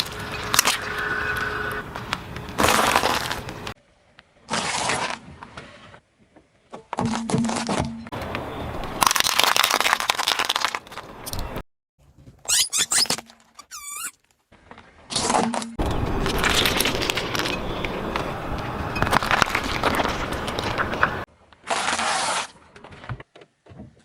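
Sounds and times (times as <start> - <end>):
objects crushed by car tyres: 2.0 - 3.8, 8.9 - 11.3, 19.0 - 23.2.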